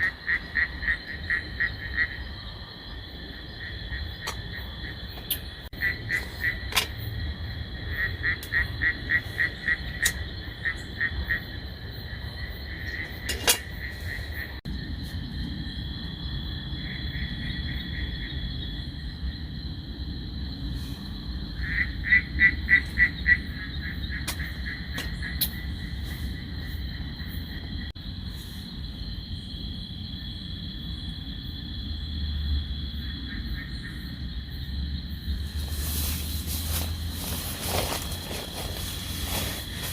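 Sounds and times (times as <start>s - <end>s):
high insect drone: 0.0s - 39.9s
frog calling in pulsed runs: 3.6s - 6.7s, 21.6s - 26.0s.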